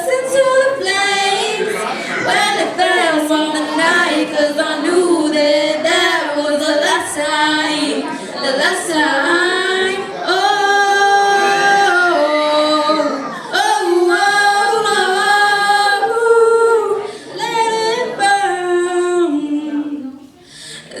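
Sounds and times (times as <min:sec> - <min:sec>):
women singing a cappella: 0:00.0 - 0:21.0.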